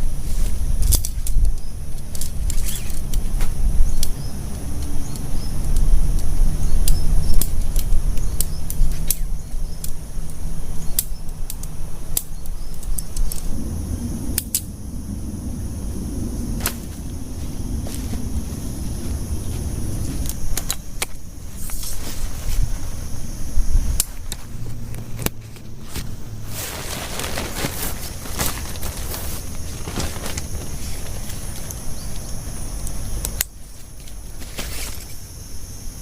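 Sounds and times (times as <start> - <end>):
heavy rain on a tent: 24.6 - 32.2.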